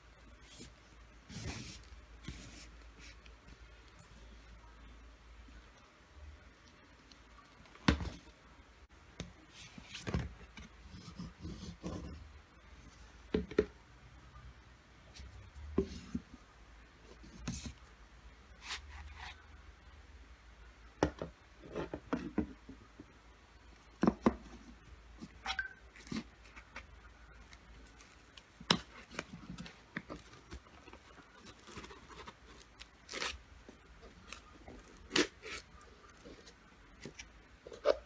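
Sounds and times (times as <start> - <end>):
packaging rustling: 27.4 - 37.3.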